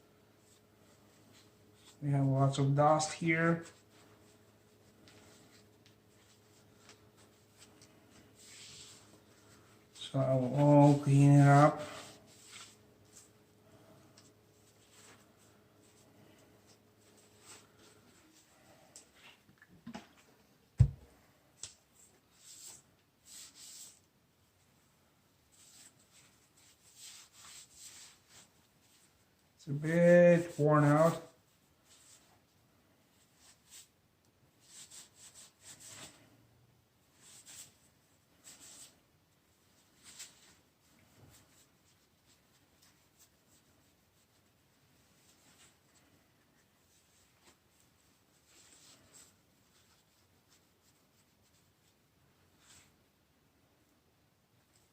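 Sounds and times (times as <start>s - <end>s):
scratchy rubbing strokes: 2.6s - 13.4s, 22.3s - 24.0s, 25.5s - 29.2s, 34.6s - 36.4s.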